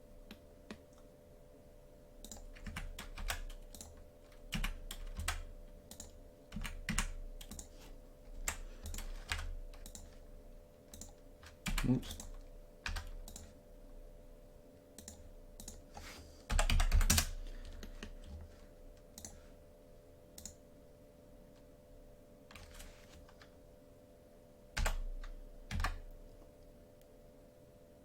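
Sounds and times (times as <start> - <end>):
faint steady hum: 0.0 - 28.0
keyboard typing: 2.2 - 10.3, 10.9 - 13.6, 15.0 - 19.4, 20.4 - 20.6, 22.5 - 23.5, 24.8 - 26.3.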